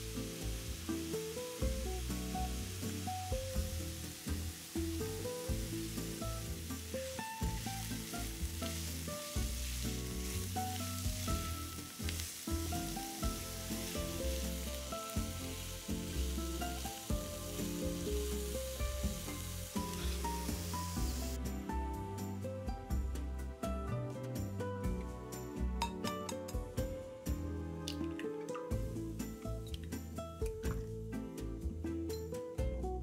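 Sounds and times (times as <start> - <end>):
vegetables sizzling in a pan: 0.0 - 22.4
soft background music: 0.0 - 33.0.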